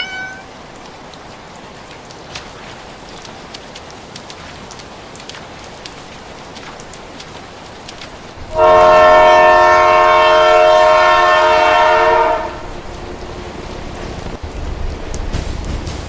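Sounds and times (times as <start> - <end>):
steady hiss: 2.3 - 14.4
low rumble of train: 2.4 - 16.0
train horn blast: 8.4 - 14.4.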